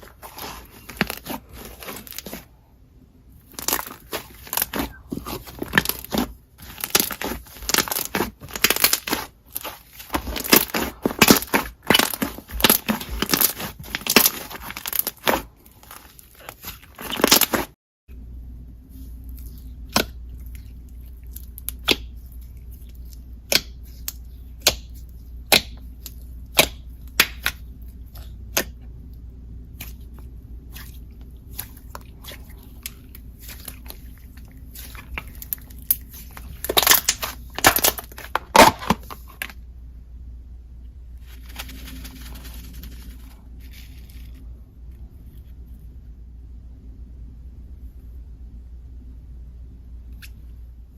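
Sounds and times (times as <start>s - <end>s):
crackly rustle: 41.2s - 45.8s.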